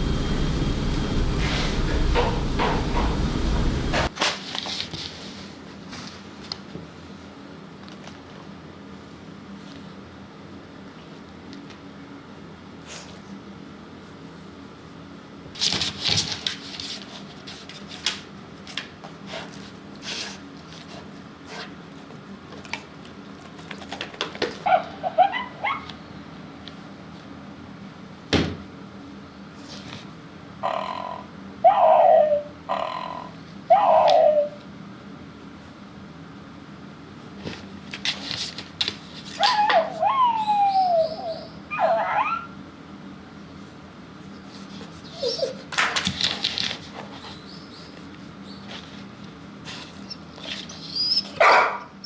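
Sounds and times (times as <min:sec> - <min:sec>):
whimpering cry: 0:24.7 - 0:26.0, 0:30.6 - 0:34.6, 0:39.4 - 0:42.6, 0:45.1 - 0:45.7.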